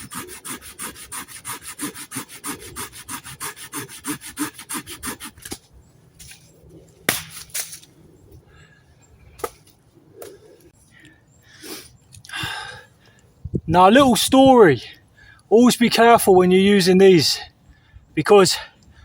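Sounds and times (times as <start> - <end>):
hand saw cutting wood: 0.0 - 5.6.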